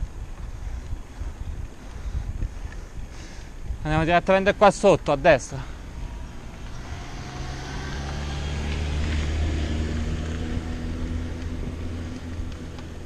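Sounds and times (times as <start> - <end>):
wind and tyre noise: 0.0 - 13.0
car engine humming: 5.6 - 13.0.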